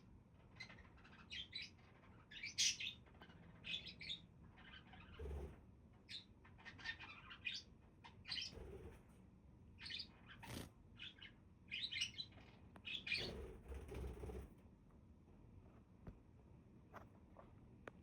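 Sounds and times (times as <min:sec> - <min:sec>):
budgerigars chattering and chirping: 0:00.6 - 0:05.4, 0:06.1 - 0:08.6, 0:09.8 - 0:13.5.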